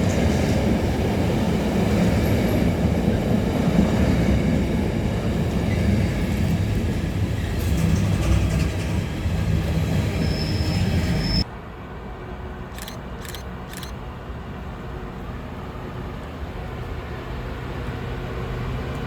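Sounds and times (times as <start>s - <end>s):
train wheels rumbling on rails: 0.0s - 11.5s.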